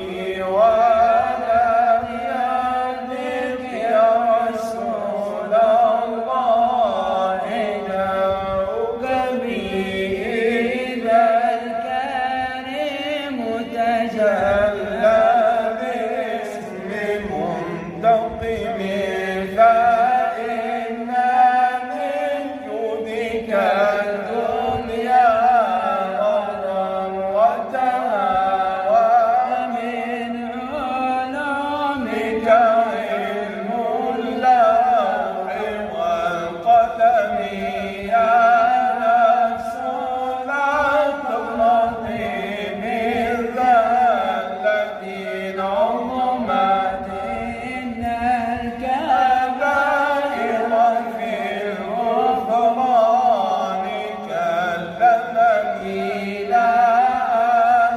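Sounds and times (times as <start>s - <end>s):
man chanting melismatic poetry: 0.0s - 57.9s.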